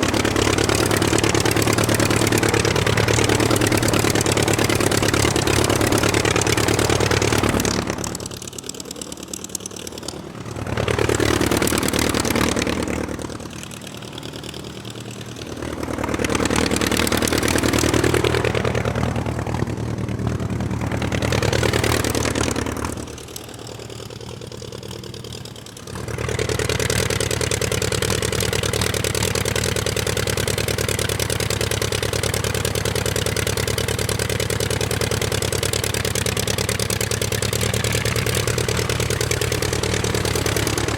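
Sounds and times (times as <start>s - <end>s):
vehicle engine revving: 9.8s - 24.3s, 37.1s - 40.9s.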